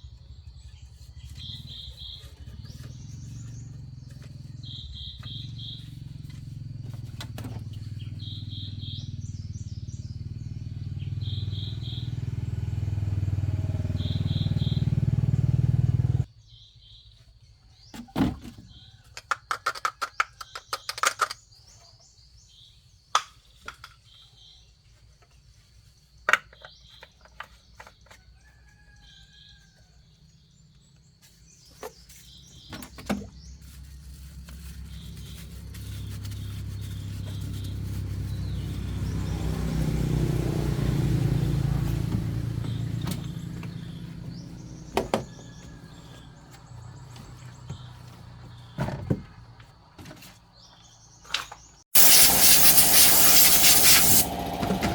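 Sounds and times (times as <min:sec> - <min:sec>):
vehicle engine rumble passing by: 0:00.0 - 0:16.3, 0:33.3 - 0:49.9, 0:52.0 - 0:54.9
birds chirping: 0:00.0 - 0:17.1, 0:34.6 - 0:54.9.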